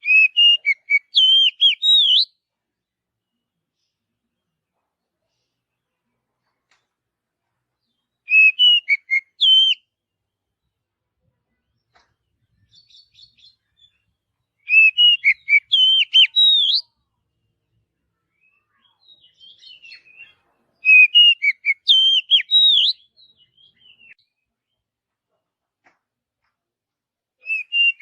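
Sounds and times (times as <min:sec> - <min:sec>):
soft bird twittering: 0:00.0 - 0:02.3, 0:11.5 - 0:24.8, 0:27.4 - 0:28.0
bird singing whistled phrases: 0:00.0 - 0:02.4, 0:08.3 - 0:09.9, 0:14.6 - 0:16.9, 0:18.3 - 0:24.3, 0:27.4 - 0:28.0.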